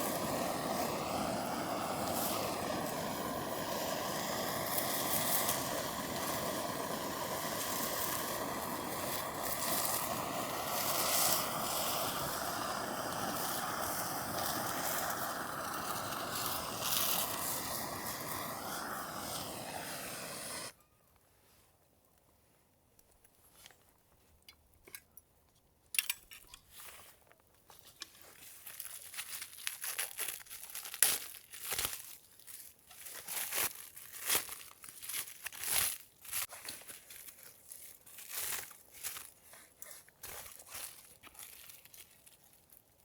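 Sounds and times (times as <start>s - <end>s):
plastic packaging crinkled and torn: 28.2s - 43.0s.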